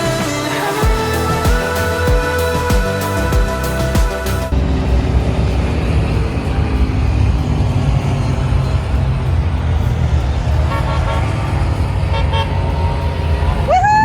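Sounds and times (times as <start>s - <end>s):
horn toots: 10.6s - 13.6s.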